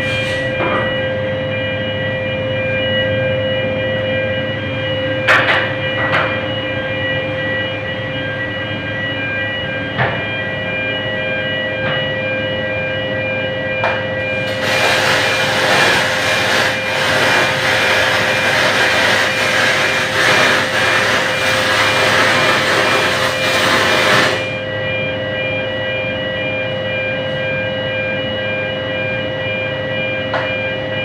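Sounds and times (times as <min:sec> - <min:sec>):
steady hum with high tones: 0:00.0 - 0:31.0
welding arc hissing: 0:14.5 - 0:24.5.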